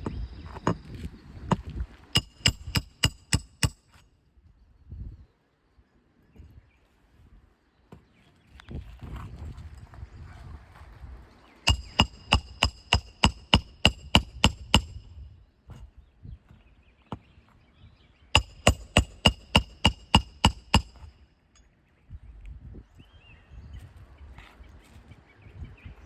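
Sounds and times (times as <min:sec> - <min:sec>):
hammer striking metal: 0:02.2 - 0:03.8, 0:11.7 - 0:15.0, 0:18.4 - 0:21.1.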